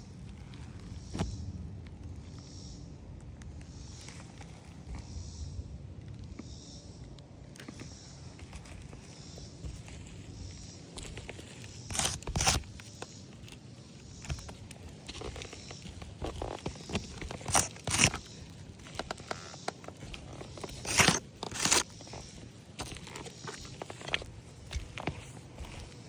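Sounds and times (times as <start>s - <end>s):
gritty scraping on roof: 10.9s - 26.0s.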